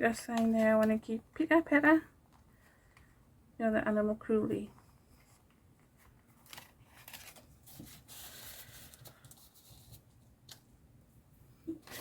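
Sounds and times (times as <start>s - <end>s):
paper and card rustling: 4.6s - 10.6s, 11.7s - 12.0s.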